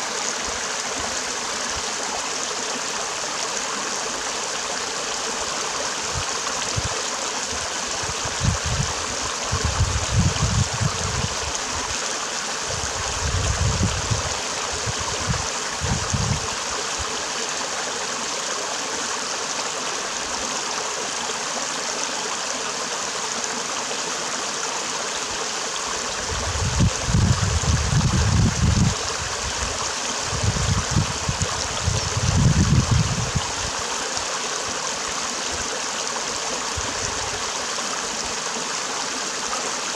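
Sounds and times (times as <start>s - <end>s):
stream water over rocks: 0.0s - 39.9s.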